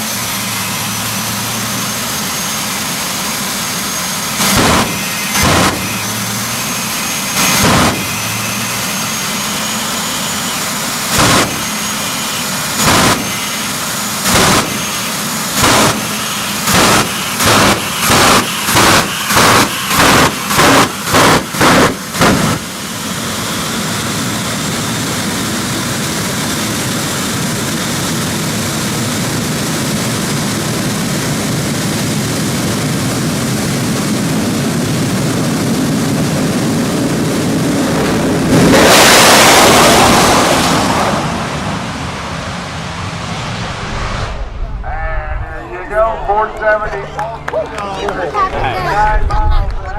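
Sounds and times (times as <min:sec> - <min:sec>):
jet turbine engine: 0:00.0 - 0:49.9.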